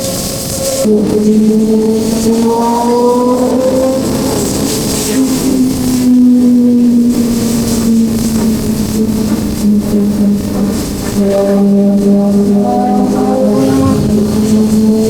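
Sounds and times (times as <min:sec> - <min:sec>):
wind rush: 0:13.0 - 0:15.0.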